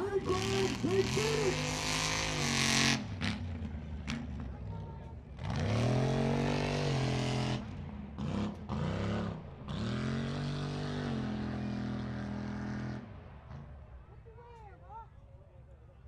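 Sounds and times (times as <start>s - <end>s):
truck engine revving: 0.0s - 4.5s, 5.3s - 13.6s.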